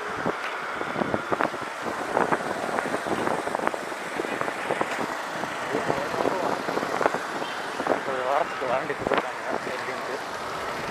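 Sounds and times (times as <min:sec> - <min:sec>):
wind on microphone: 0:00.0 - 0:08.2
road noise: 0:00.0 - 0:10.9.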